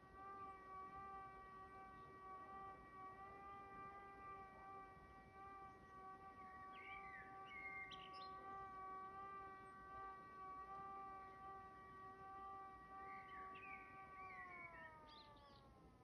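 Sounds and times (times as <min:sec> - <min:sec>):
bird chirps: 0:06.7 - 0:08.4, 0:13.1 - 0:15.7.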